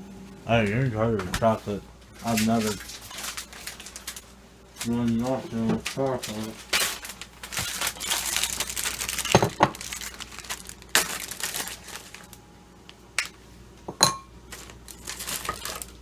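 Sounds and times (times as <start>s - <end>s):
wrapper crinkling: 2.2s - 12.4s, 14.5s - 16.0s.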